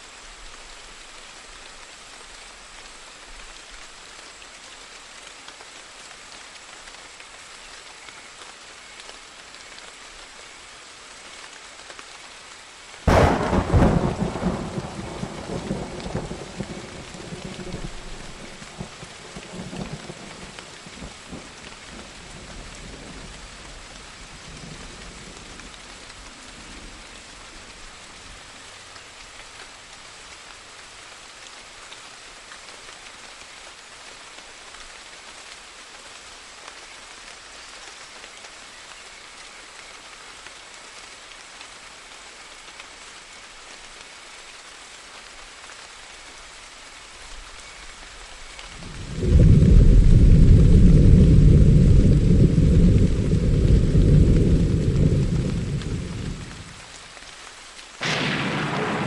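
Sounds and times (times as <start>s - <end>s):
steady rain: 0.0s - 59.0s
low rumble of thunder: 13.1s - 27.7s, 48.7s - 56.8s, 58.0s - 59.0s.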